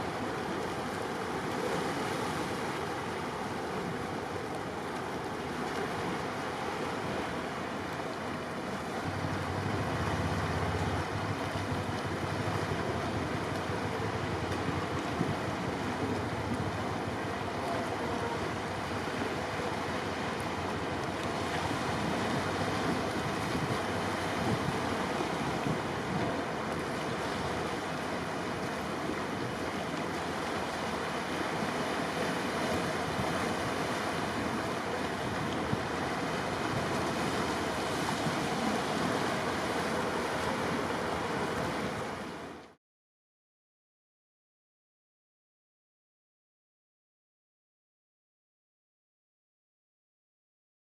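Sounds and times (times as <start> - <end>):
rush of wind: 0.0 - 42.8
sea water rushing: 0.0 - 42.8.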